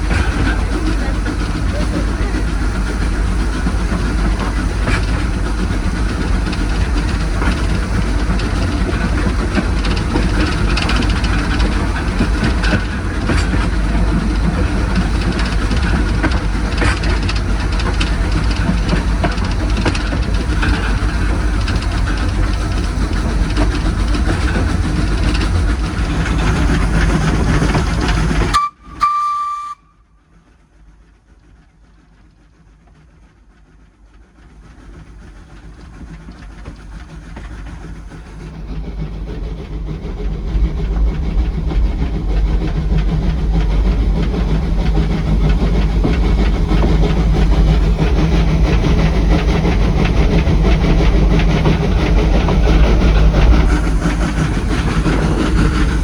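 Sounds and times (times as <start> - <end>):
steam train rumbling: 0.0 - 56.0
train whistle toot: 28.5 - 30.2.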